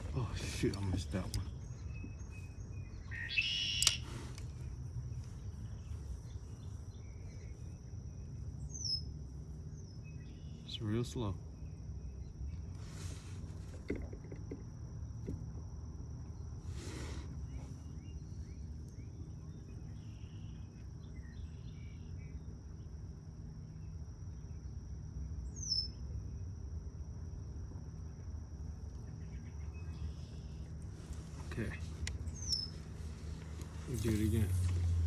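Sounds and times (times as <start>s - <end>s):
high insect trill: 0.0s - 35.0s
short falling bird chirp: 1.4s - 4.7s, 32.3s - 35.0s
brief rustle: 30.9s - 35.0s.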